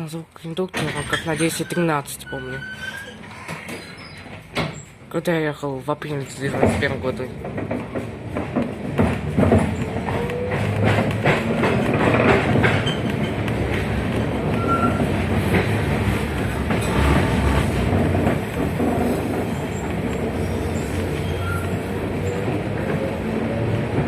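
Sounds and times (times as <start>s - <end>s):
tram wheels rumbling on rail: 0.6s - 24.0s
wheels knocking over rail joints: 6.2s - 24.0s.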